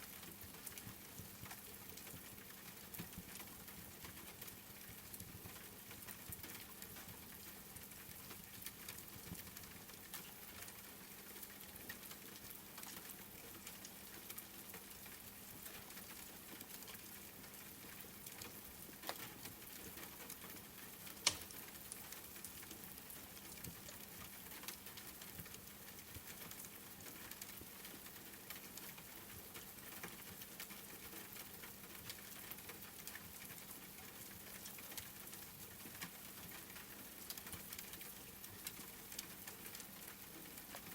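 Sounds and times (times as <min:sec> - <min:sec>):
rain pattering: 0:00.0 - 0:40.9
wood fire crackling: 0:18.2 - 0:26.7.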